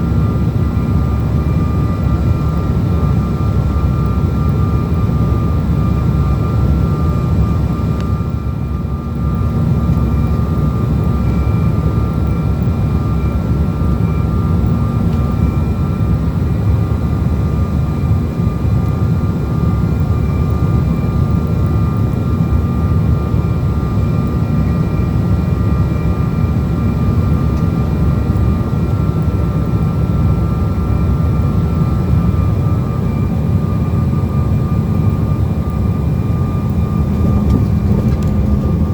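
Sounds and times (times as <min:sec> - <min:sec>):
engine whine: 0:00.0 - 0:38.9
jet engine rumble in cabin: 0:00.0 - 0:38.9.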